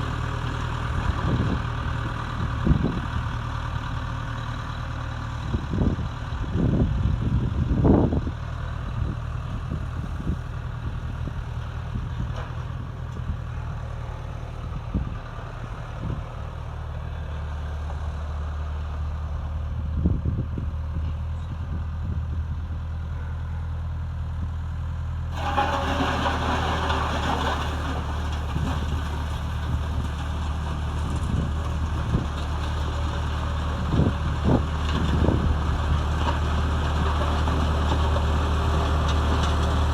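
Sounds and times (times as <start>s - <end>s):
skid steer engine running: 0.0s - 39.9s
metal clanks and knocks: 25.3s - 30.4s.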